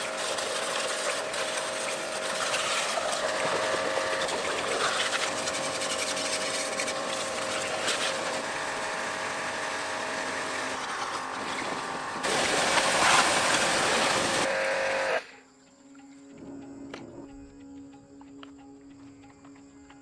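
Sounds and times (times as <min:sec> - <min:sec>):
machine hissing and humming: 0:00.0 - 0:15.4.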